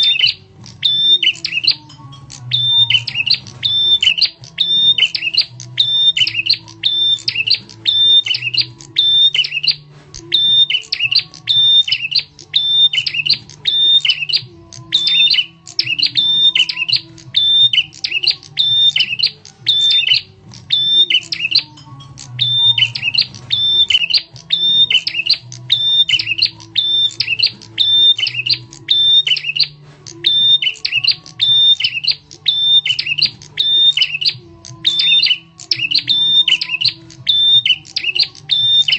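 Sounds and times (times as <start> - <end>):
bird chirps: 0.0 - 38.9.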